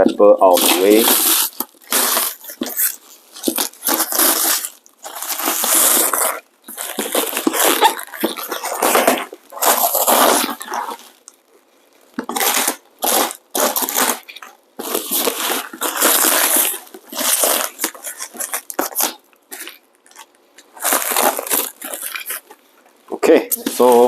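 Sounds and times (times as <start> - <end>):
plastic wrapper crinkling: 0.0 - 24.0.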